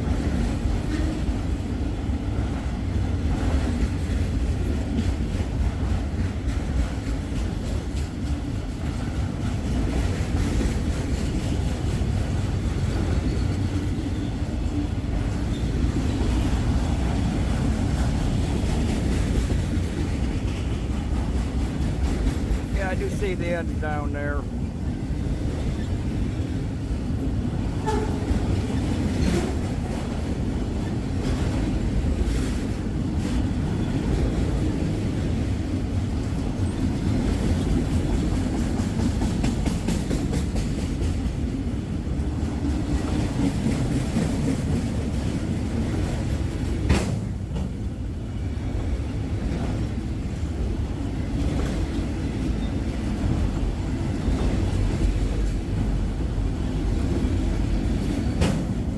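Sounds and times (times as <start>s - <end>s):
freight train cars rumbling past: 0.0s - 58.9s
wheels clicking over rail joints: 3.3s - 22.8s, 27.2s - 47.9s.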